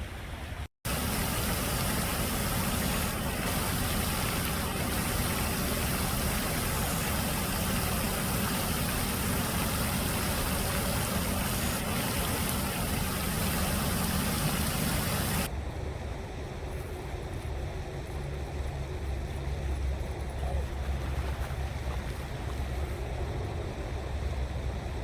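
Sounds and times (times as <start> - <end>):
steady rushing noise: 0.8 - 16.6.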